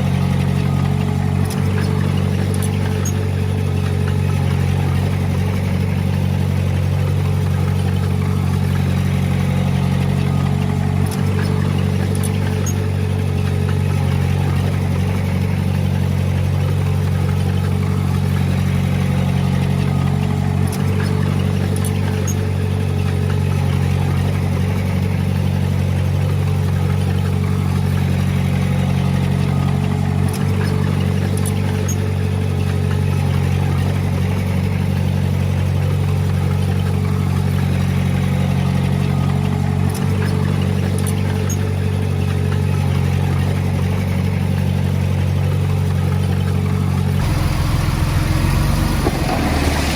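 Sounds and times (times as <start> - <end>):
diesel engine running: 0.0 - 49.9
constant whine: 45.4 - 49.9.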